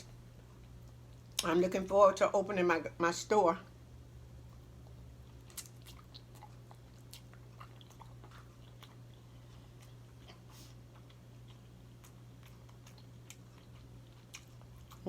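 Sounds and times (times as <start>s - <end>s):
person chewing food: 4.4s - 15.0s.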